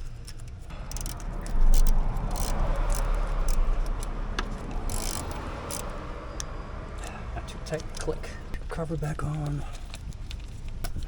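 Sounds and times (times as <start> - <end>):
metallic clicks and rattles: 0.0 - 6.0
hands rustling handling tools: 9.2 - 11.0.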